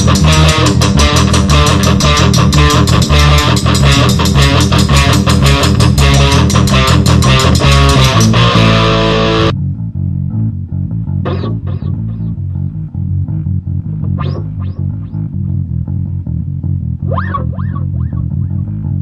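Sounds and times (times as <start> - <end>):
rock band playing: 0.0 - 9.6
bass guitar riff: 0.0 - 19.0
swooping guitar notes: 0.0 - 19.0.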